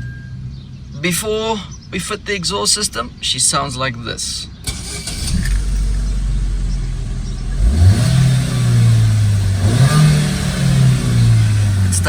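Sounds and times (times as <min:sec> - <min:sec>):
car engine idling and revving: 0:04.5 - 0:12.0.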